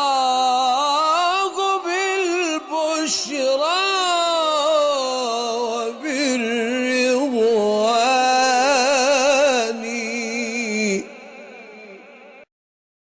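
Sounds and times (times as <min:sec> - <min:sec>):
man chanting: 0:00.0 - 0:12.5.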